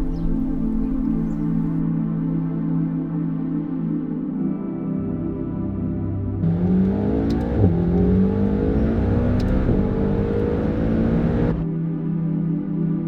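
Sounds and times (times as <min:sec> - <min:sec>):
car engine accelerating hard: 0:00.0 - 0:01.8, 0:06.4 - 0:11.6.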